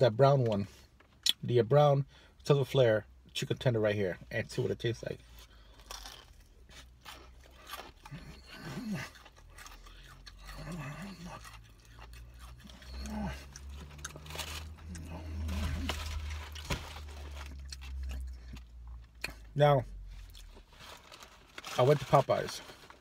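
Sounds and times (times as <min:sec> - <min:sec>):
crunchy chewing: 0:05.4 - 0:19.4.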